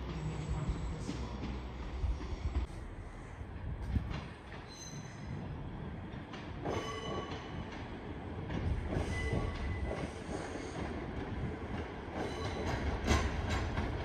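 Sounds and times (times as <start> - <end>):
train rumbling over tracks: 0.0 - 14.0
high-pitched wheel squeals: 4.7 - 5.3.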